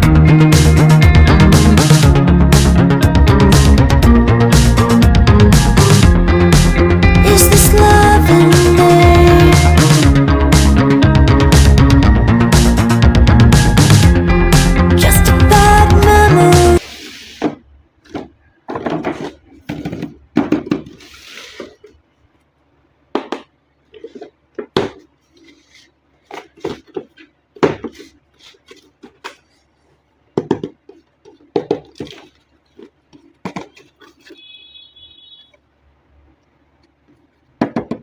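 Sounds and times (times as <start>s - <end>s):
steady high tone: 0.0s - 16.8s.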